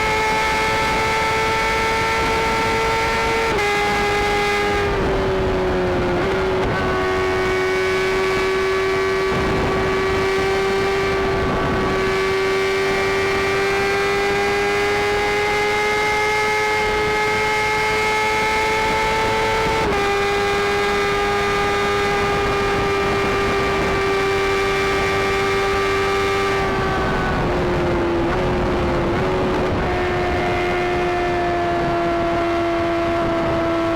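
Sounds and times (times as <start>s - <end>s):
motorcycle engine at high revs: 0.0s - 33.9s
wind rush: 0.0s - 33.9s.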